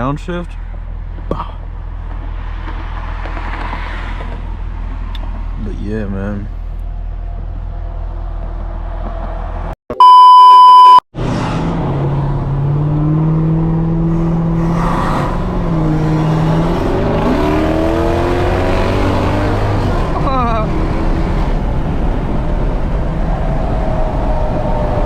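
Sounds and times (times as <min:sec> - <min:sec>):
censor bleep: 0:09.9 - 0:11.0.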